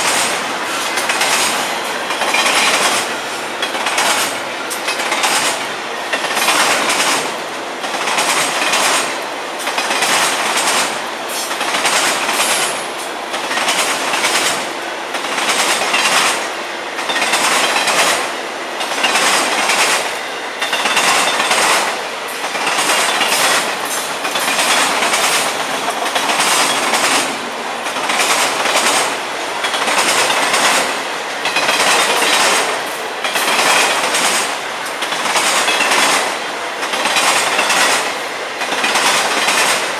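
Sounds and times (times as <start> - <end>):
train wheels clicking over rail joints: 0.0 - 39.9.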